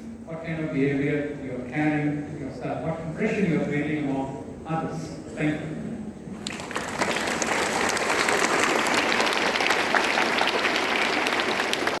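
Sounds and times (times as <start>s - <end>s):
audience applause: 6.4s - 12.0s.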